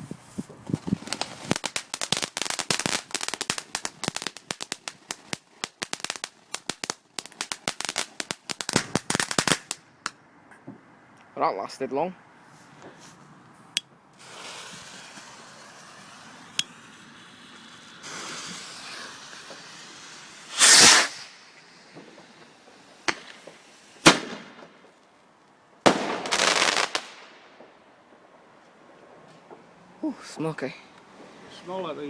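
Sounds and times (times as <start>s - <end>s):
fireworks crackling: 0.0s - 10.2s, 14.2s - 32.0s
fireworks bangs: 0.6s - 9.8s, 14.2s - 25.0s, 25.8s - 27.8s.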